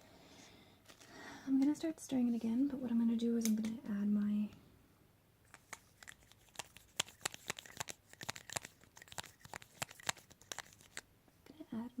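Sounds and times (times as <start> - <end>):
plastic crinkling: 5.5 - 11.0.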